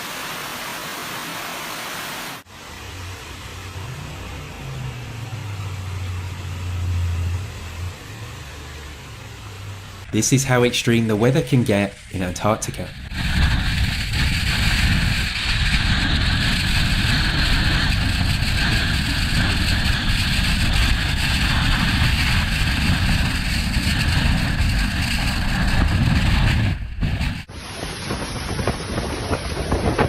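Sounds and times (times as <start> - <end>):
storm wind on microphone: 9.6 - 30.0.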